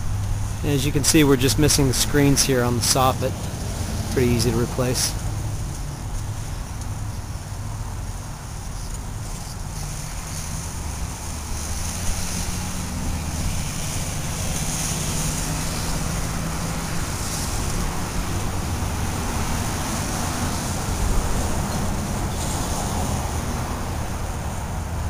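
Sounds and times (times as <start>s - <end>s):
wind rumbling on microphone: 0.0s - 25.0s.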